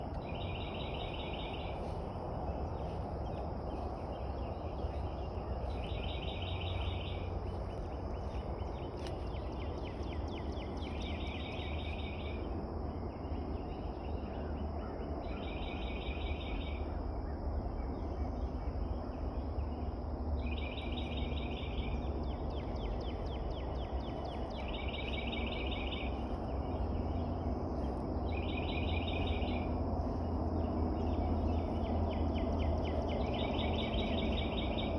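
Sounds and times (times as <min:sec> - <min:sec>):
songbird trilling: 0:00.0 - 0:12.5, 0:20.4 - 0:34.9
high insect drone: 0:00.0 - 0:34.9
low outdoor rumble: 0:00.0 - 0:34.9.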